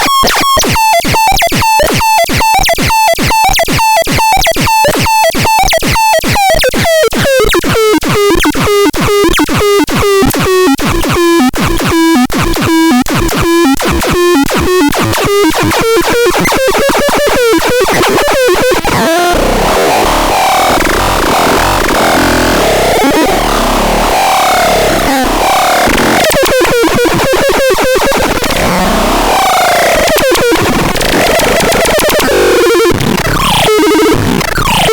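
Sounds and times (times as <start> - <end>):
bending electronic synth notes: 8.2 - 34.9
distorted noisy synth texture: 11.9 - 34.9.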